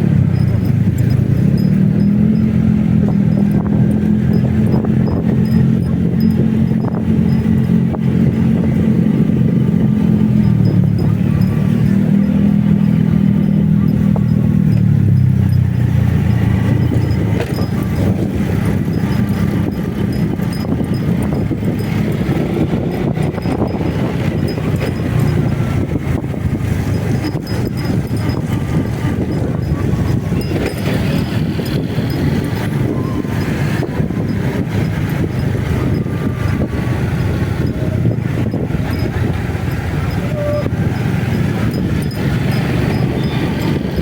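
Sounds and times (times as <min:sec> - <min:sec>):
motorcycle riding: 0:00.0 - 0:44.0
road noise: 0:00.0 - 0:44.0.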